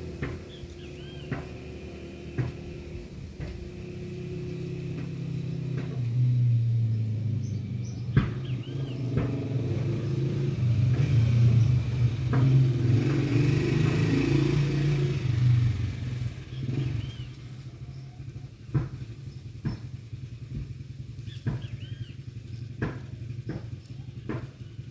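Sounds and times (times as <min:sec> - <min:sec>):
motor engine droning: 0:00.0 - 0:24.9.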